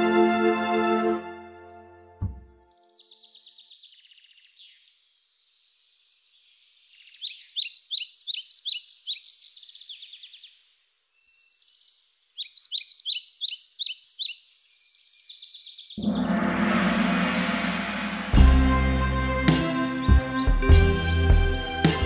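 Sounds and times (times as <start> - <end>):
songbirds singing: 1.7 - 16.0
rapid repeated bird chirping: 2.0 - 16.0.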